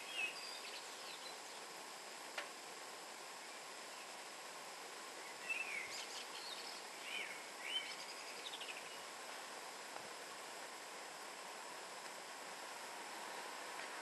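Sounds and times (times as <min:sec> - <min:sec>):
songbird singing: 0:00.0 - 0:01.9, 0:03.3 - 0:09.6
steady background hiss: 0:00.0 - 0:14.0.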